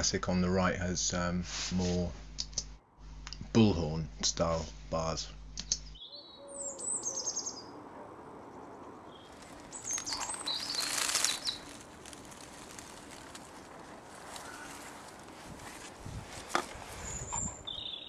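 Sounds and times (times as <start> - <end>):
faint outdoor background: 0.0 - 18.0
birds chirping: 5.6 - 18.0.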